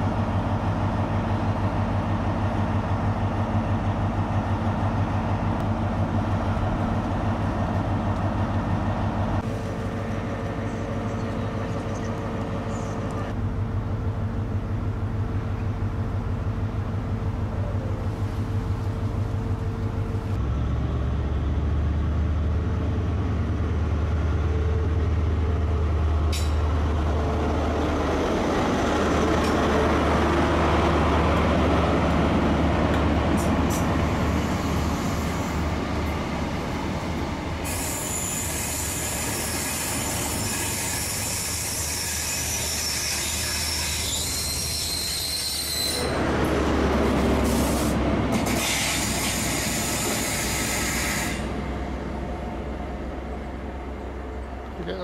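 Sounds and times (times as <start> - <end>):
diesel train engine drone: 0.0 - 55.0
wheels squealing on curved track: 37.7 - 46.2.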